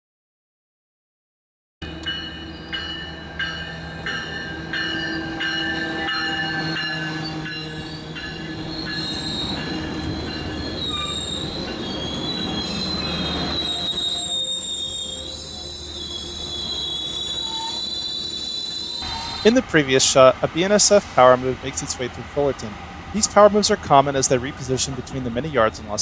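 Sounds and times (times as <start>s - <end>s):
locomotive low rumble: 1.8s - 26.0s
wheels squealing against rail: 1.8s - 26.0s
wheels clicking over rail joints: 8.3s - 26.0s.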